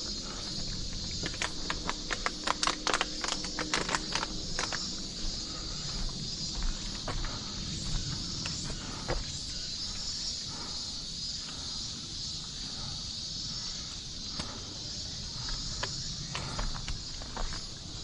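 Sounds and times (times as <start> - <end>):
footsteps on forest trail: 0.0 - 18.0
insect chorus: 0.0 - 18.0
camera handling rumble: 1.1 - 5.1.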